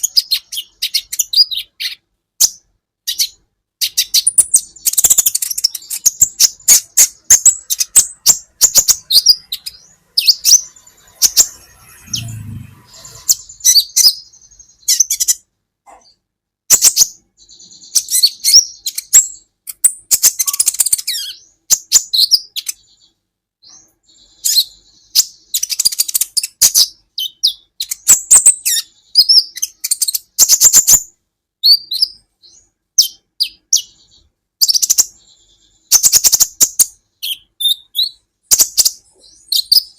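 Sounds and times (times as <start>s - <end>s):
sunbird chirping: 0.0s - 15.5s, 16.1s - 39.9s.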